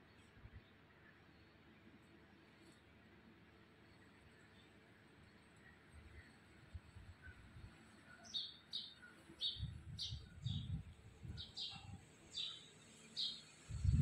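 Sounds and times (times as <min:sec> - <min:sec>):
small bird chirping: 0:05.3 - 0:14.0.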